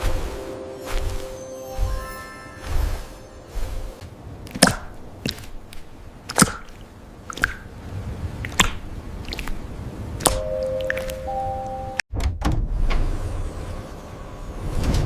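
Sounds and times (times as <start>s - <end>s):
two-note tone: 0.0s - 4.0s, 10.4s - 12.0s.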